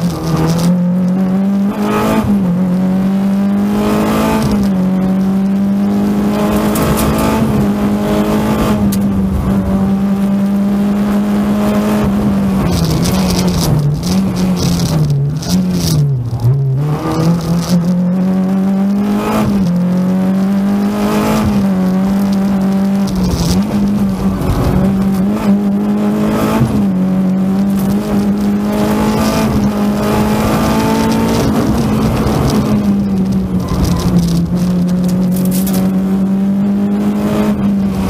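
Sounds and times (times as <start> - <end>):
car engine revving at speed: 0.0 - 38.0.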